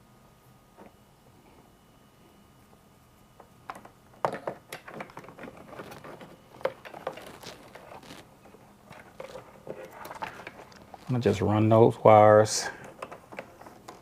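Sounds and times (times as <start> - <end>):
wires and plastic connectors clicking: 4.7 - 8.2, 8.9 - 11.3.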